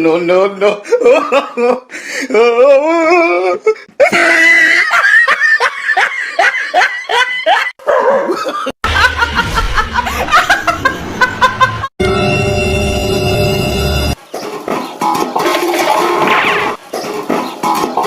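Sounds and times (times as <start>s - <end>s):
person laughing hard: 0.8s - 11.9s
low hum: 8.9s - 14.2s.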